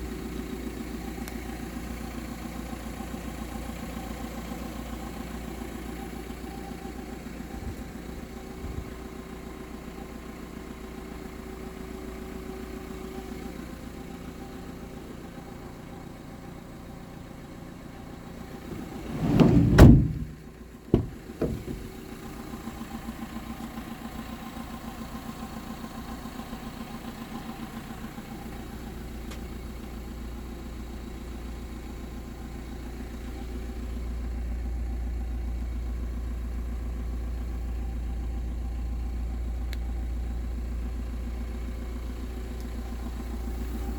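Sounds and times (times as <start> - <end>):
diesel engine idling: 0.0 - 43.9
low rumble: 18.6 - 22.0
sharp knocks: 18.7 - 21.9.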